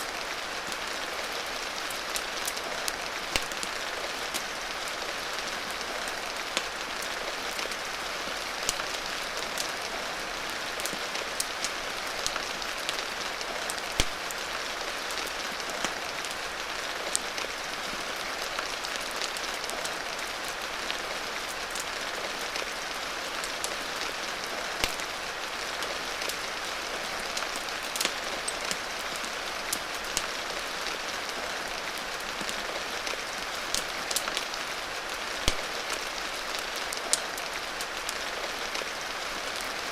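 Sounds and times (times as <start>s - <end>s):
steady rain: 0.0s - 39.9s
fire crackling and popping: 2.2s - 4.5s, 8.6s - 9.8s, 10.7s - 16.0s, 24.7s - 25.2s, 27.2s - 31.5s, 32.4s - 38.9s.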